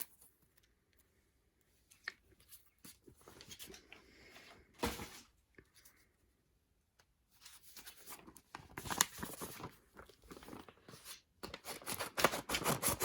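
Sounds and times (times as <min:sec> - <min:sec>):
packaging crinkling and tearing: 0:08.1 - 0:13.0.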